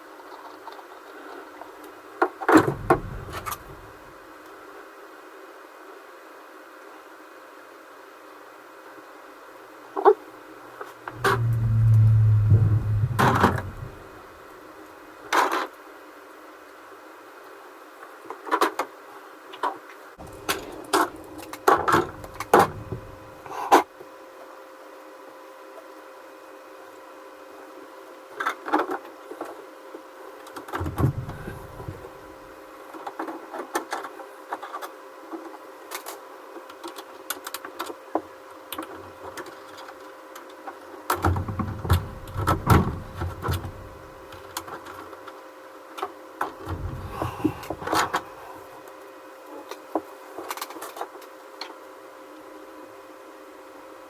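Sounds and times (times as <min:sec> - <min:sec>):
faint steady hum: 0:02.5 - 0:04.2, 0:10.4 - 0:15.3, 0:20.2 - 0:23.8, 0:30.7 - 0:32.7, 0:41.1 - 0:45.1, 0:46.4 - 0:49.2
heavier bumps and knocks: 0:02.6 - 0:04.0, 0:11.1 - 0:14.3, 0:30.8 - 0:32.3, 0:41.2 - 0:44.5, 0:46.6 - 0:48.3.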